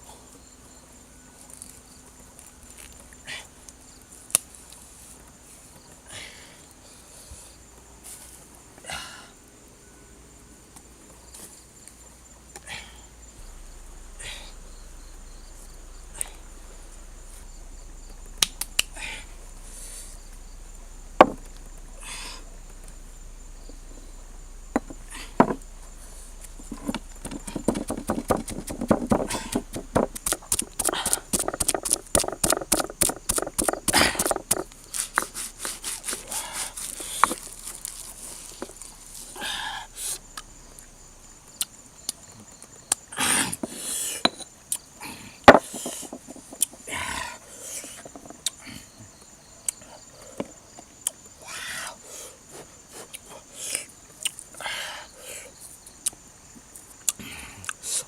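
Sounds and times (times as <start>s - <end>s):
high insect drone: 0.0s - 58.0s
knocks: 21.2s - 21.7s, 24.7s - 25.6s, 26.7s - 34.7s, 45.5s - 46.8s
rapid chopping strokes: 26.6s - 39.4s.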